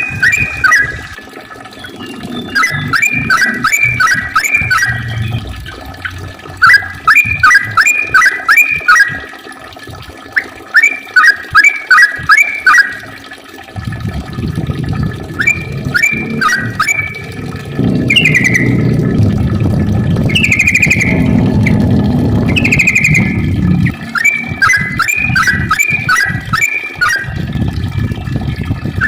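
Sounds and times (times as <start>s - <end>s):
bird singing bubbling notes: 0.0s - 29.0s
low rushing noise: 14.6s - 25.0s.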